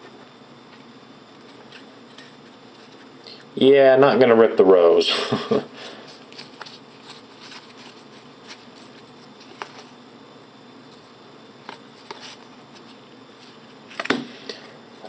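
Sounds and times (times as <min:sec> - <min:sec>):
trading cards flipped through: 0:06.2 - 0:10.0, 0:11.6 - 0:14.3.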